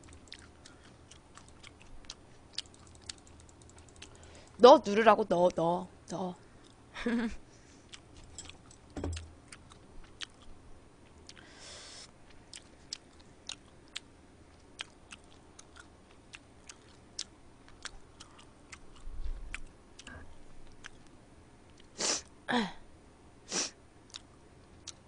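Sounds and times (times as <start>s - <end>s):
person chewing food: 0.0s - 4.6s, 7.8s - 11.6s, 12.2s - 21.1s, 24.1s - 25.0s.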